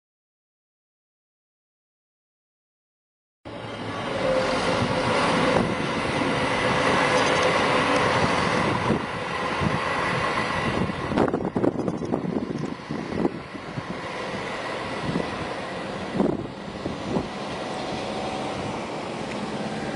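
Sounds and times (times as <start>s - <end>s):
passenger train rumbling: 3.5s - 19.9s
wind buffeting microphone: 4.4s - 19.9s.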